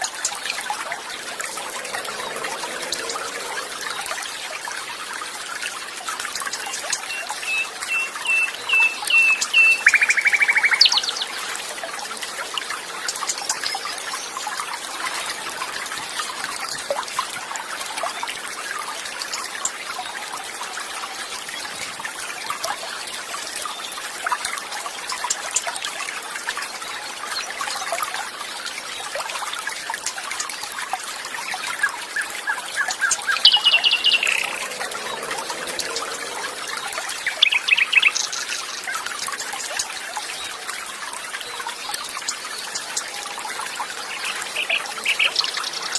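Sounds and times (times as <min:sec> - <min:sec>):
songbirds chirping: 0:00.0 - 0:18.6, 0:30.1 - 0:45.9
water trickling and flowing: 0:00.0 - 0:45.9.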